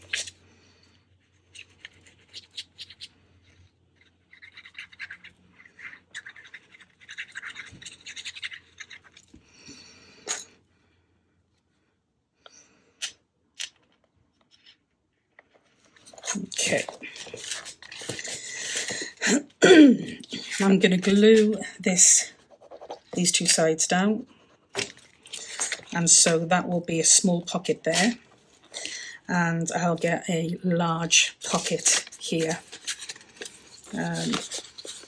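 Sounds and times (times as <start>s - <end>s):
paper rubbing scratchily: 20.1s - 23.7s.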